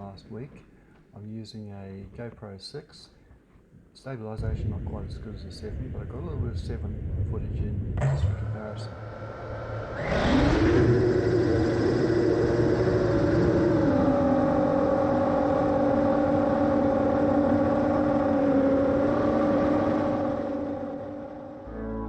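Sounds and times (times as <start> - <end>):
drone motors buzzing whine: 8.9 - 22.0.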